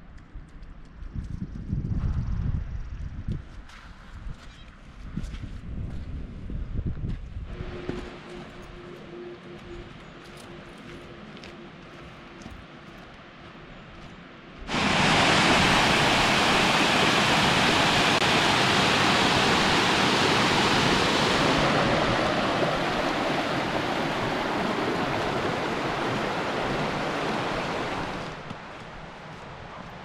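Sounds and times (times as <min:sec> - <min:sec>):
rushing water: 0:14.7 - 0:30.0.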